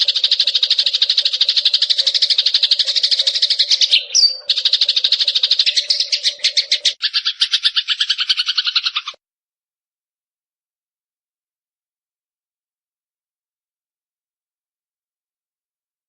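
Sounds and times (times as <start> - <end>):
doubled bird trill: 0.0 - 9.2
sparrow chattering: 0.0 - 9.2.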